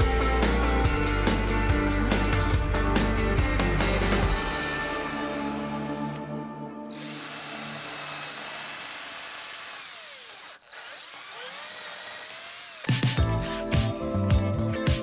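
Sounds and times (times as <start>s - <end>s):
electric drill boring into wood: 4.9s - 6.2s, 6.9s - 13.2s.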